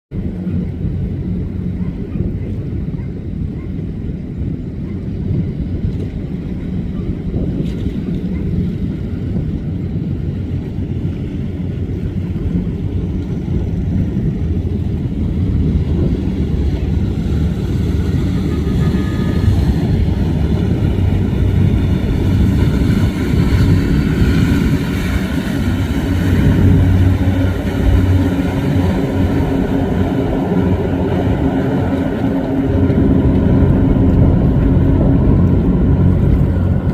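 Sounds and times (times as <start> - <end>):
speedboat engines droning: 0.2 - 36.9.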